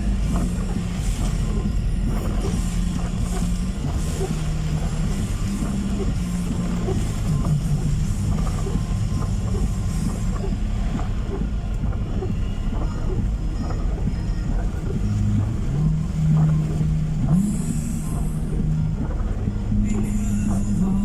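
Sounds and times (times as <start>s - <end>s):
car engine hum: 0.0s - 21.0s
road rumble: 0.0s - 21.0s.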